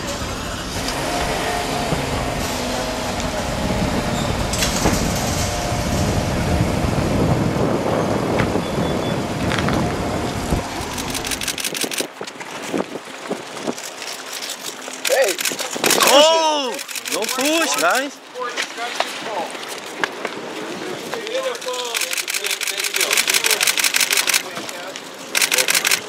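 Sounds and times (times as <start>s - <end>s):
street and vehicle noise: 0.0s - 26.0s
sharp clicks: 10.8s - 12.1s, 15.0s - 16.2s, 16.8s - 17.7s, 21.7s - 24.6s, 25.4s - 26.0s.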